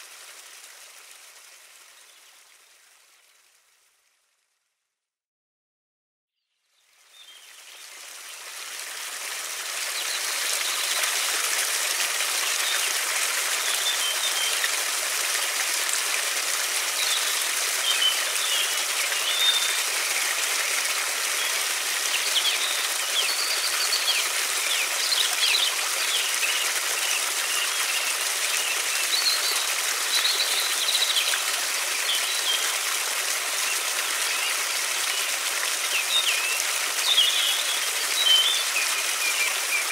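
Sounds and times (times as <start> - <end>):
small songbirds chirping: 6.4 - 8.5, 16.9 - 20.4, 21.4 - 32.8, 34.2 - 39.9
river water rushing: 7.7 - 39.9.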